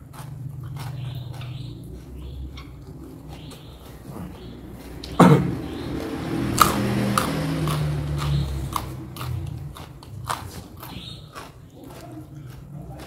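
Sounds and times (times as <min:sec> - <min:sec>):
crunchy chewing: 0:00.0 - 0:13.0
loud thump: 0:05.2 - 0:05.6.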